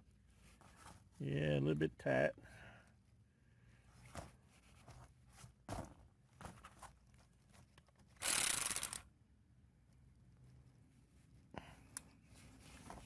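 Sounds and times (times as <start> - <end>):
ratchet wrench clicking: 8.2 - 9.0.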